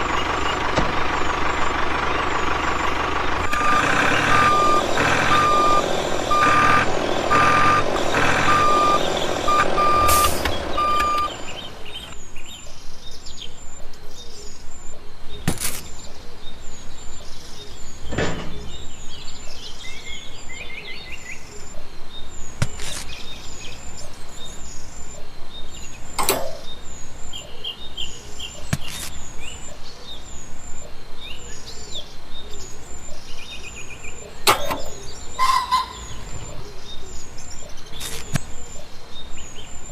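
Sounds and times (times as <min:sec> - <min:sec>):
reversing alarm beeping: 0:00.0 - 0:12.3, 0:29.6 - 0:39.9
birds chirping: 0:00.0 - 0:39.9
vehicle running noise: 0:00.0 - 0:39.9.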